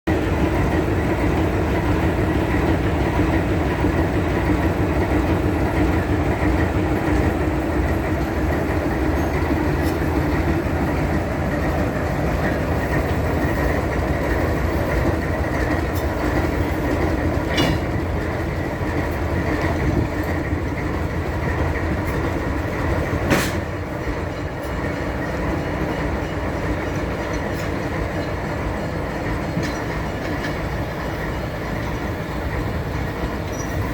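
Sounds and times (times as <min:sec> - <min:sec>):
railroad cars rumbling on track: 0:00.0 - 0:33.9
sharp metallic clanks: 0:17.4 - 0:18.0.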